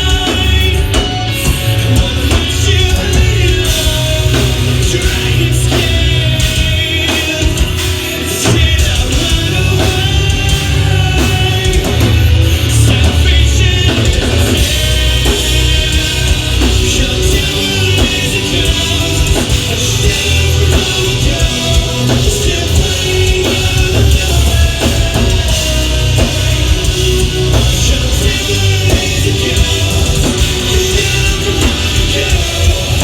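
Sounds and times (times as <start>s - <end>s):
drums: 0.0s - 33.0s
guitar: 0.0s - 33.0s
loud rock music: 0.0s - 33.0s
singing: 0.0s - 33.0s.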